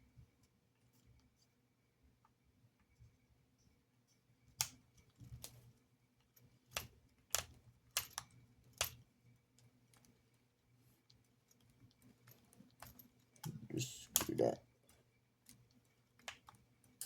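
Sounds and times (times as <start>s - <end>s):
small parts and tools clicking: 4.5s - 10.4s, 11.0s - 17.0s.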